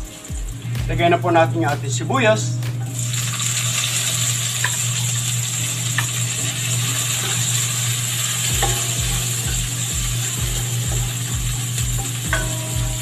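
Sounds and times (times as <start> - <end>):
vegetables sizzling in hot oil: 0.0 - 0.8, 2.7 - 13.0
steady low hum: 0.0 - 13.0
spatula stirring in a wok: 3.2 - 13.0
spatula tapping on pan: 8.4 - 13.0.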